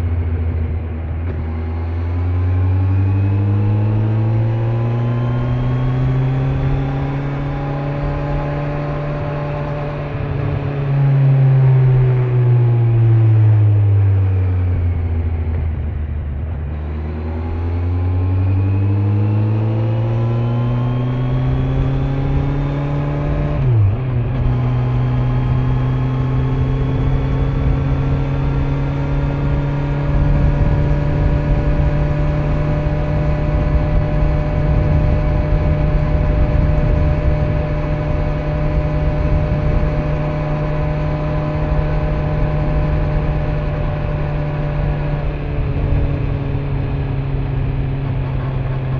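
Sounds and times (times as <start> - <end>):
motorcycle engine accelerating: 0.0 - 48.9
wind and road noise: 0.0 - 48.9.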